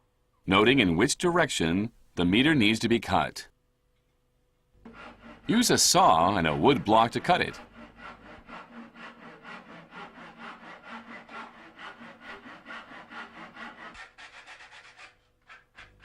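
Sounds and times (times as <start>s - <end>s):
hand saw cutting wood: 4.8s - 16.0s.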